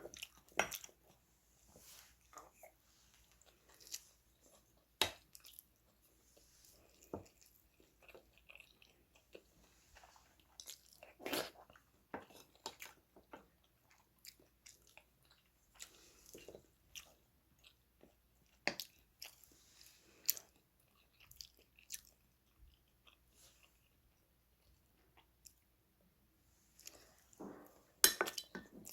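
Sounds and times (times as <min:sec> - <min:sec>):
person chewing and biting: 0:20.2 - 0:23.9.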